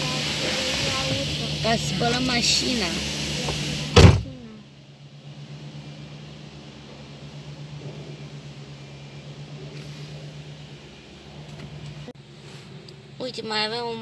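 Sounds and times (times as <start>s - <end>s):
car engine idling: 0.0s - 14.0s
loud thump: 3.4s - 4.4s.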